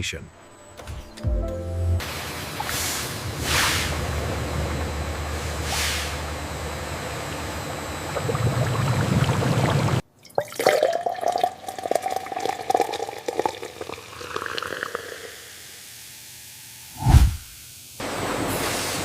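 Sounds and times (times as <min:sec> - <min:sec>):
industrial machine rumble: 0:02.0 - 0:10.0
liquid pouring and splashing: 0:08.2 - 0:15.2.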